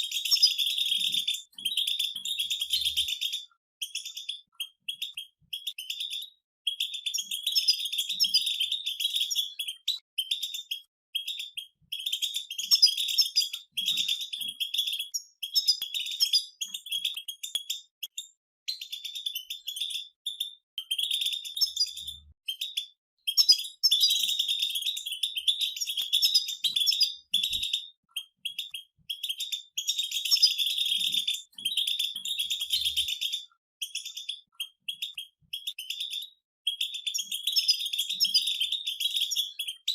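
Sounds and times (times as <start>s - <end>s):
goldfinches twittering: 0.0s - 6.2s, 6.8s - 17.5s.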